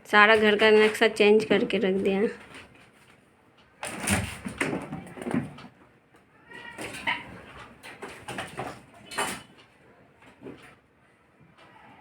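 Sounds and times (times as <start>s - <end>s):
kittens playing: 0.4s - 12.0s
knocks and clatters: 3.8s - 5.9s, 6.6s - 9.7s.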